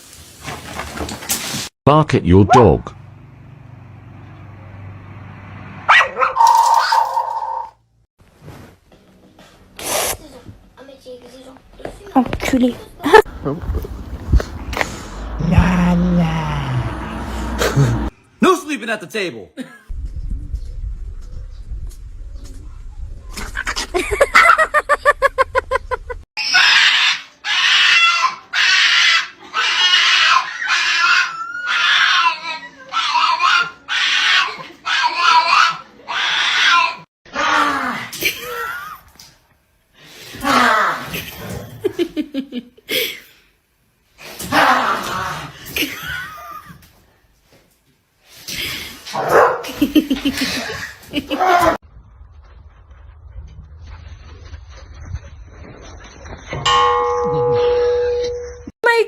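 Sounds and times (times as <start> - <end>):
dog barking: 5.9 - 6.6, 49.2 - 49.7
animal harsh squealing scream: 26.4 - 37.7.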